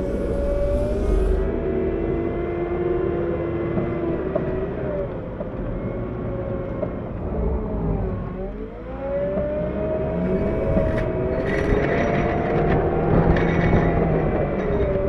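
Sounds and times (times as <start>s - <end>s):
diesel engine working: 0.0s - 2.3s.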